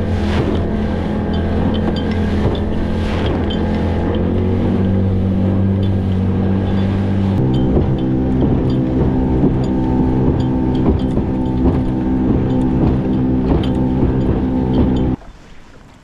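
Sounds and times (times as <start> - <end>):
motorboat engine running: 0.0 - 15.2
wind buffeting microphone: 0.0 - 15.2.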